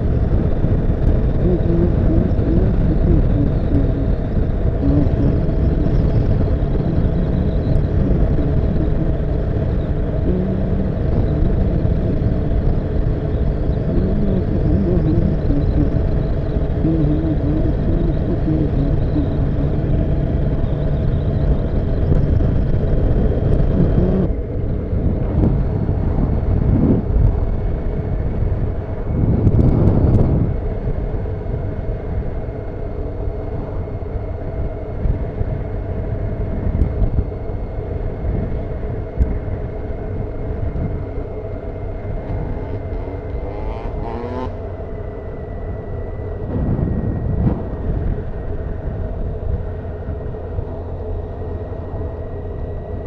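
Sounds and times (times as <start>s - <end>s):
motorcycle engine running: 0.0s - 53.0s
wind and road noise: 0.0s - 53.0s.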